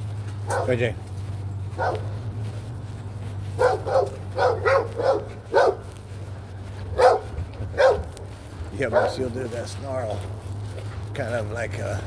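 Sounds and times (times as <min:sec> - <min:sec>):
dog barking: 0:00.5 - 0:00.8, 0:01.8 - 0:02.2, 0:03.5 - 0:05.9, 0:06.9 - 0:08.2, 0:08.8 - 0:09.4.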